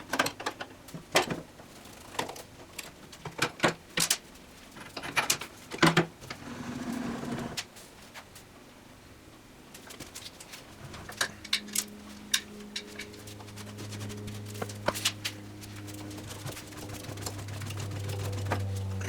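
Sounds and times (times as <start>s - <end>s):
low steady hum: 8.8s - 19.0s
metal tools clicking and clinking: 11.1s - 13.2s.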